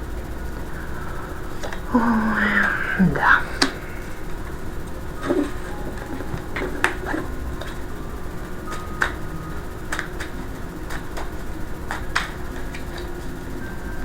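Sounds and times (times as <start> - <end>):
cards snapping and tapping: 8.7 - 13.2.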